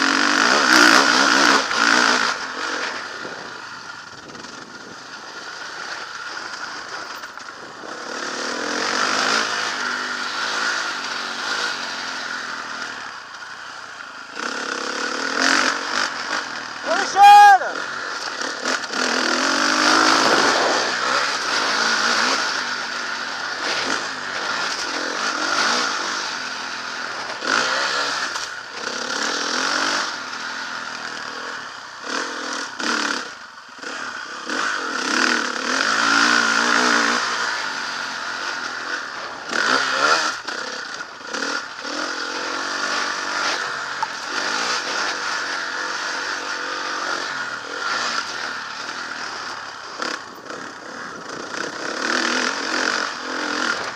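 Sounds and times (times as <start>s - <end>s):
motocross bike engine revving: 0.0s - 53.9s
clatter: 0.1s - 16.7s, 32.1s - 53.9s.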